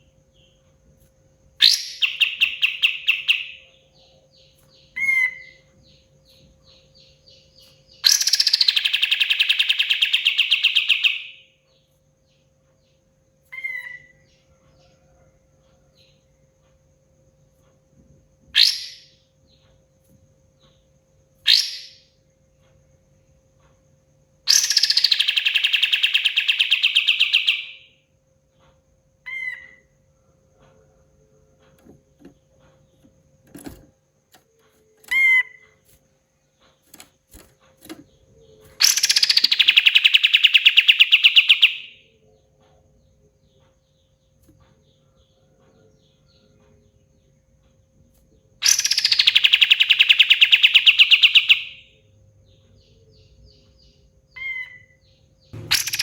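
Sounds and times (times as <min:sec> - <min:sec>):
bulbul singing rapid rattles: 0:31.6 - 0:41.7, 0:48.6 - 0:51.7, 0:55.6 - 0:56.0.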